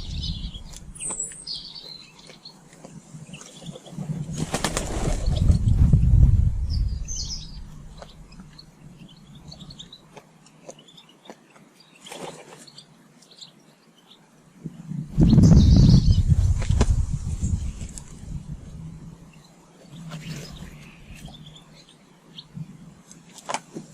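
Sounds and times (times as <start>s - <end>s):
small birds chirping: 0.0s - 23.3s
bird wings flapping: 3.8s - 6.0s, 16.3s - 18.1s.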